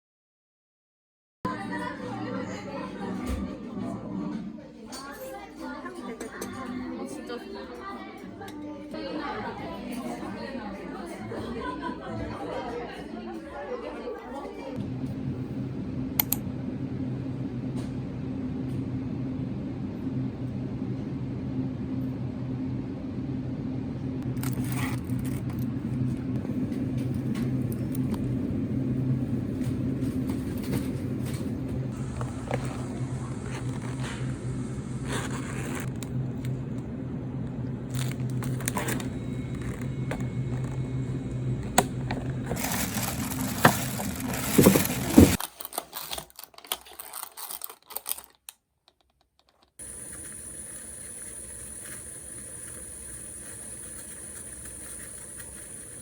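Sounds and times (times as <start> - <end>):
low mechanical hum: 14.4 - 45.5, 49.8 - 56.0.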